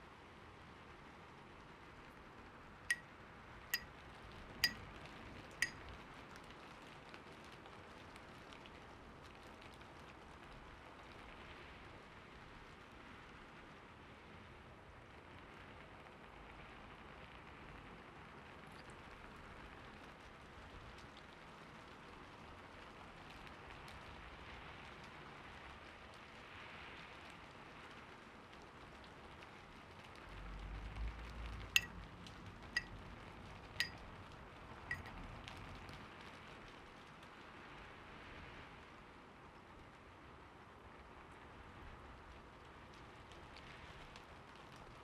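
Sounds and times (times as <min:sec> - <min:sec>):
light ticks: 0:05.6 - 0:05.9, 0:31.0 - 0:33.0, 0:34.9 - 0:36.0.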